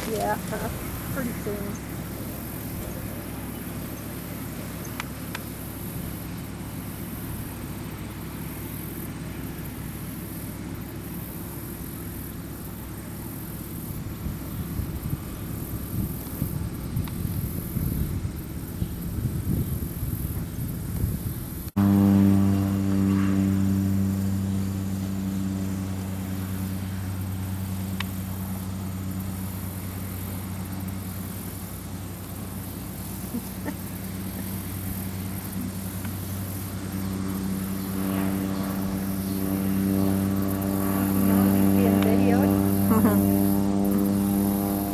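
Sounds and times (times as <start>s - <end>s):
tractor engine rumbling: 0.0s - 8.0s, 23.2s - 43.7s.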